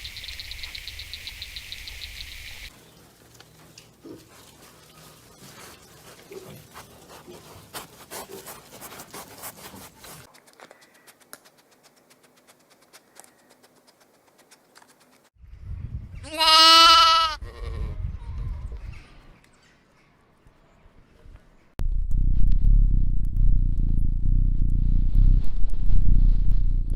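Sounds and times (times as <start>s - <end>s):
loud wavering bleat: 16.2s - 18.0s.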